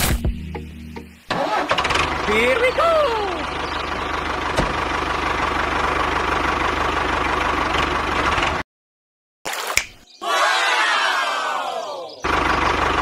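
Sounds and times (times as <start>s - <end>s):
tractor engine idling: 1.3s - 8.6s, 12.2s - 13.0s.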